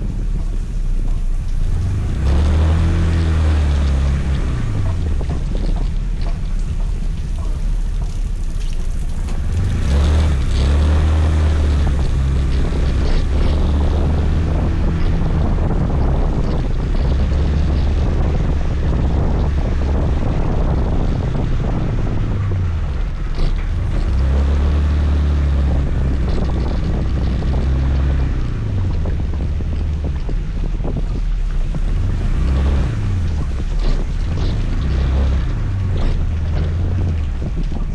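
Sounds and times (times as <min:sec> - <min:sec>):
scooter engine running: 0:00.0 - 0:24.5
road noise: 0:00.0 - 0:37.9
wind on microphone: 0:00.0 - 0:37.9.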